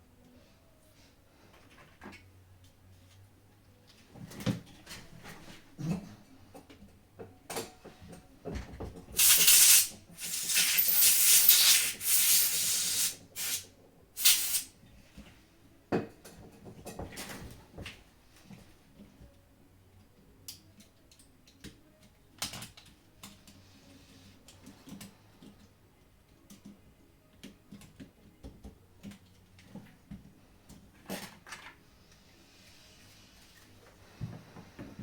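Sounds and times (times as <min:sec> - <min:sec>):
loud rubbing or hissing: 0:09.2 - 0:13.6, 0:14.2 - 0:14.7.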